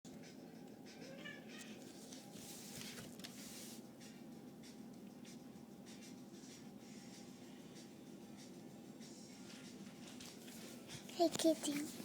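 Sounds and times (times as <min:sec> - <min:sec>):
faint rustling and scratching: 0:01.6 - 0:03.9.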